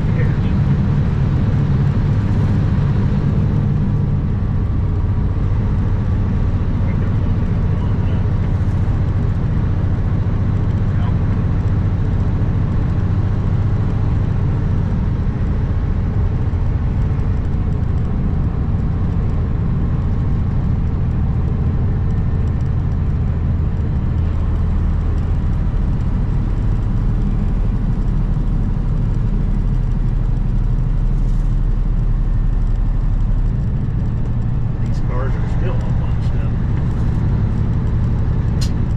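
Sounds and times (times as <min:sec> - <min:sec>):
road noise: 0:00.0 - 0:38.9
truck diesel engine running: 0:00.0 - 0:38.9.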